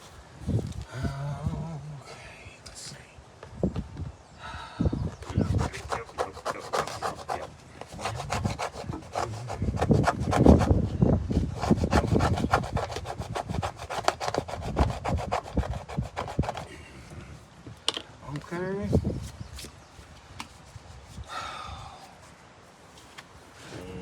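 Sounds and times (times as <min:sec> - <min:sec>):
rubbing and scraping on wood: 0:05.2 - 0:17.4.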